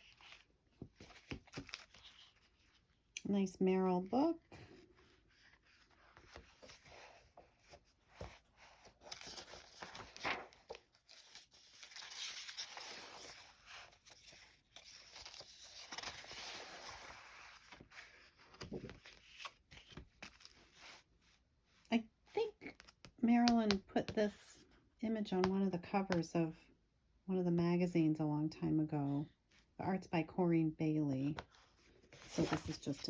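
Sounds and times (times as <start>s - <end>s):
paper rustling and crinkling: 0.0s - 3.0s, 4.5s - 21.4s, 31.4s - 33.0s.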